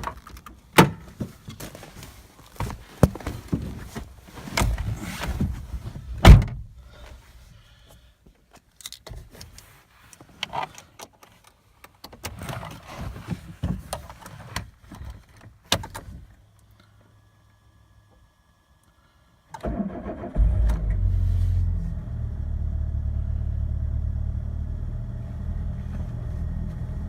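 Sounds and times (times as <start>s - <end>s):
knocks and rustles: 0.0s - 6.6s.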